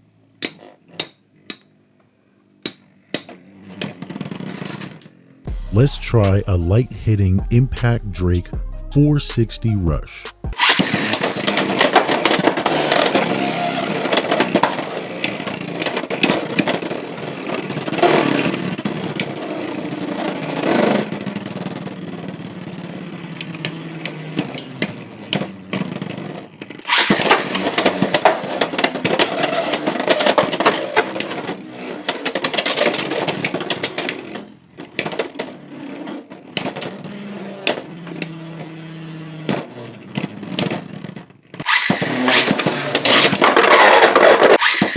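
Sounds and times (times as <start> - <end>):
spinning tops clacking: 10.6 - 16.9, 26.9 - 34.4, 41.6 - 44.9
spinning whir: 10.6 - 40.9, 41.5 - 44.9.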